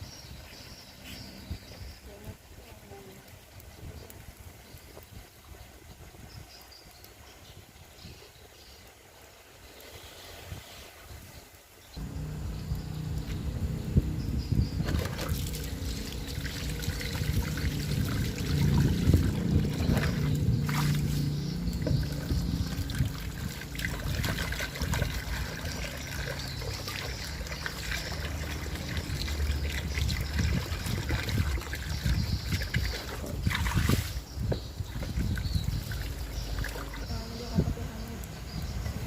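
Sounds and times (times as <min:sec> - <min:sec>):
fish sizzling over fire: 0:00.1 - 0:39.0
steady low rumble: 0:12.0 - 0:25.5.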